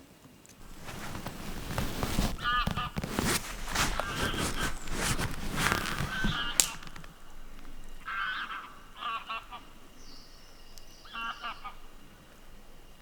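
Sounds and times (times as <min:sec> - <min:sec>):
rustling and clicks: 0:00.2 - 0:13.0
sharp crack: 0:00.6 - 0:13.0.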